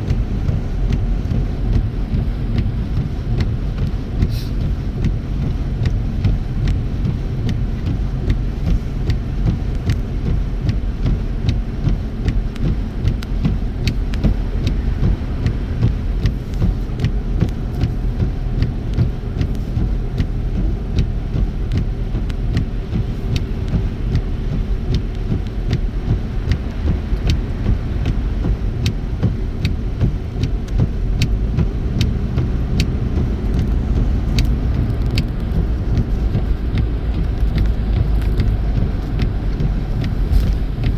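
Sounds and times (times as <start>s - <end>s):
rumble of tyres and engine: 0.0s - 40.9s
faint sharp ticks: 30.4s - 40.9s.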